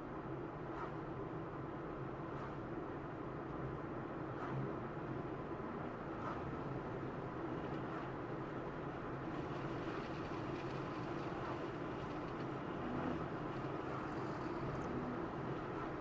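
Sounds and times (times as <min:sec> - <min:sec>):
car tyre road noise: 0:04.5 - 0:16.0.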